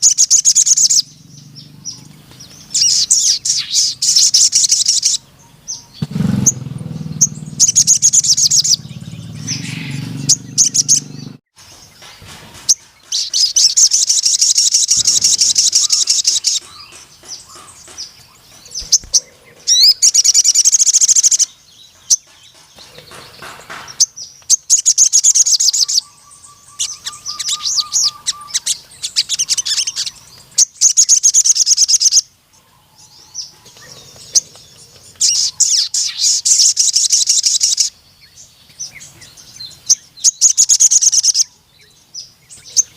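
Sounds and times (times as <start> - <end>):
sunbird trilling song: 0.0 - 42.9
bird short chirps: 12.7 - 16.8.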